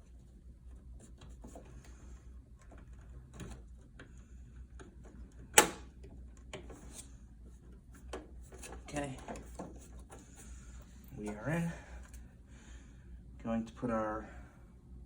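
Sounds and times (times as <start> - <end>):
small clicks and taps of parts: 2.6 - 6.9.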